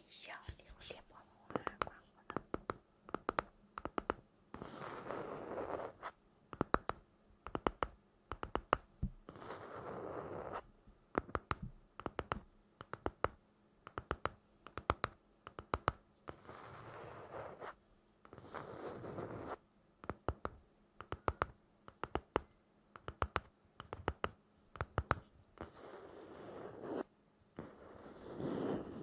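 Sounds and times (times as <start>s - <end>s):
crisp taps and clicks: 1.5s - 4.2s, 6.5s - 9.3s, 11.1s - 16.0s, 20.0s - 25.8s.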